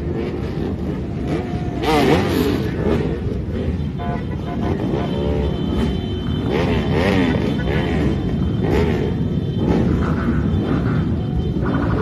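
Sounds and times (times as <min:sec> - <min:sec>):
road vehicles rumbling: 0:00.0 - 0:12.0
voices shouting and talking: 0:01.1 - 0:02.3
horn toot: 0:03.6 - 0:10.8.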